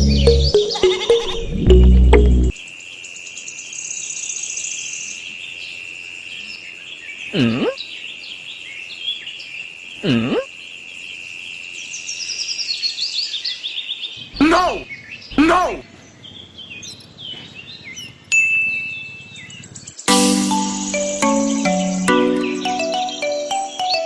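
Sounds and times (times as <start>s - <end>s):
birds chirping: 0.0s - 2.6s, 11.8s - 24.0s.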